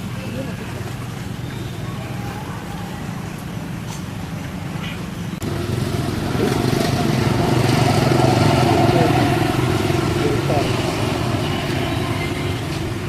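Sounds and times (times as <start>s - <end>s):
engine running steadily: 3.2s - 13.0s.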